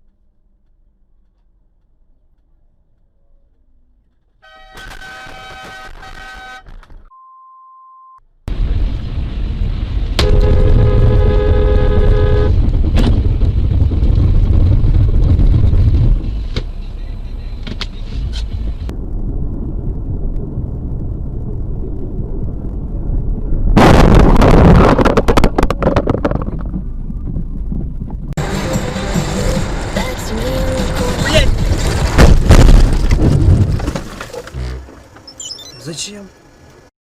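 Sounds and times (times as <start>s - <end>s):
car horn: 4.4s - 8.1s, 10.2s - 12.6s, 34.5s - 35.0s
car interior road and engine rumble: 8.5s - 21.4s, 25.4s - 36.9s.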